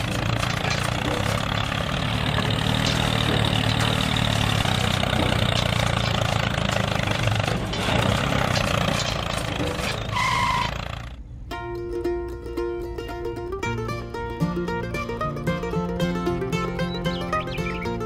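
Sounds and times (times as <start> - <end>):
tines dragging through sand: 0.0 - 11.0
small motor droning: 0.0 - 11.2.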